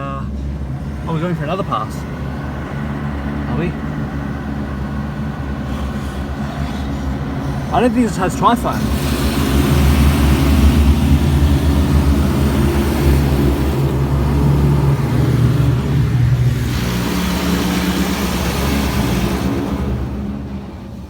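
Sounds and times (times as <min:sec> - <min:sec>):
car wash machine drone: 0:00.0 - 0:21.0
high-pressure water spray: 0:05.6 - 0:20.5.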